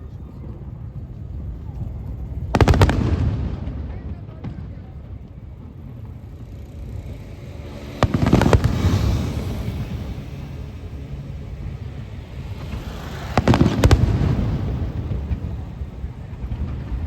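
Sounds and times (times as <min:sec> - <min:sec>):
rolling rumble: 0:00.0 - 0:17.0
fireworks bursting: 0:00.5 - 0:17.0.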